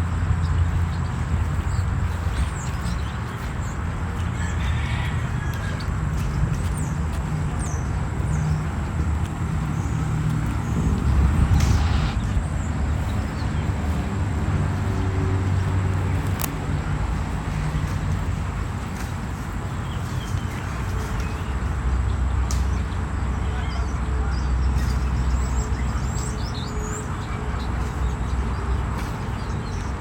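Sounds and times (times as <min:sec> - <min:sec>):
engine rumble: 0:00.0 - 0:30.0
loud rush: 0:10.4 - 0:12.6.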